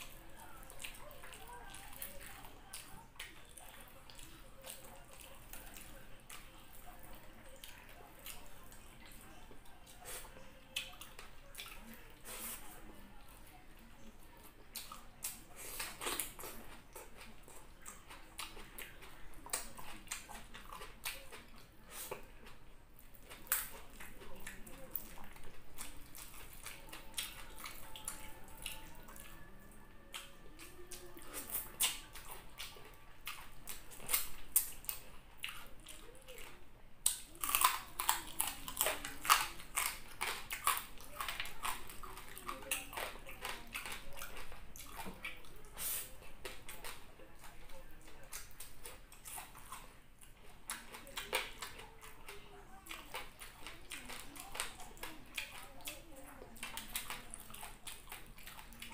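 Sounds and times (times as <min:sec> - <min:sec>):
chewing and mouth sounds: 0:00.0 - 0:58.9.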